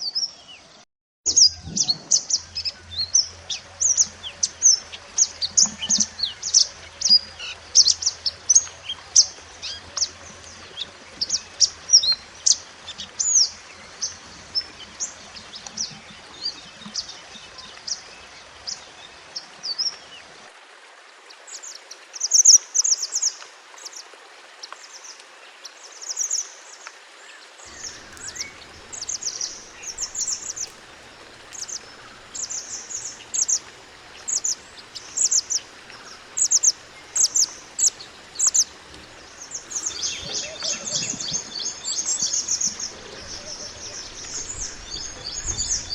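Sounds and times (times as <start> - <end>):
songbird chirping and twittering: 27.3 - 45.9.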